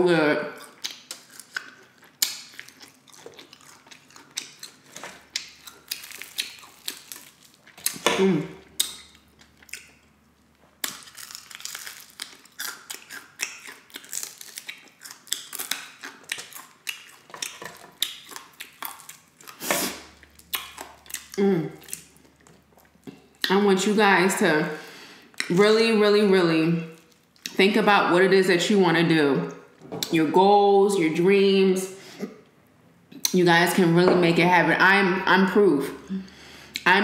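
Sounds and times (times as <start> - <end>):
chewing crispy fried chicken: 0.6 - 8.0, 8.6 - 23.6.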